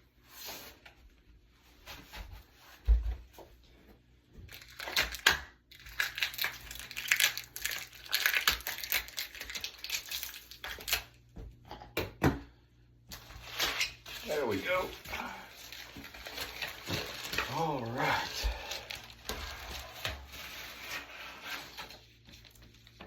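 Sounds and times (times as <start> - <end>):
packaging crinkling and tearing: 4.5 - 11.2, 13.1 - 23.0.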